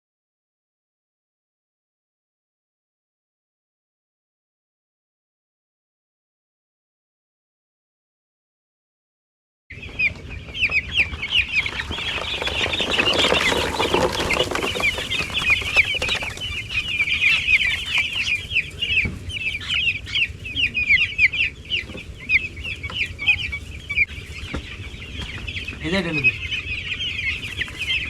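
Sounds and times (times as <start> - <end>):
chicks peeping: 9.7 - 28.0.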